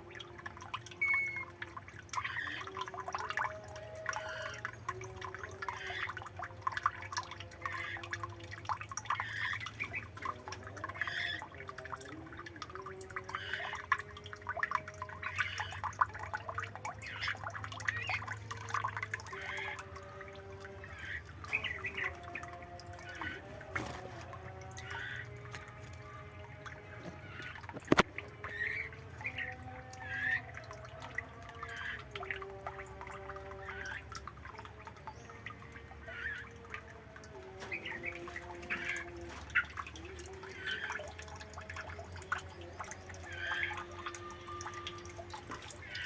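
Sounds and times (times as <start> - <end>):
water dripping and trickling: 0.0 - 46.0
birds chirping: 19.3 - 25.4, 37.4 - 41.3.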